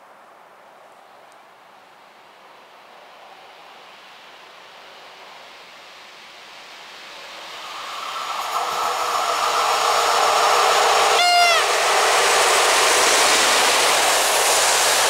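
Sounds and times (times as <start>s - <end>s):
train running on rails: 0.8s - 15.0s
locomotive horn blast: 9.6s - 12.0s.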